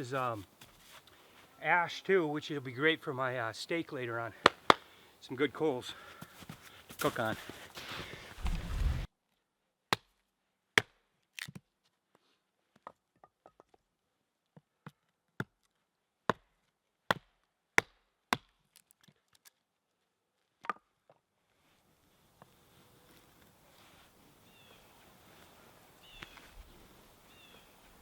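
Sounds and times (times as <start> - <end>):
wood chopping knocks: 4.4 - 4.9.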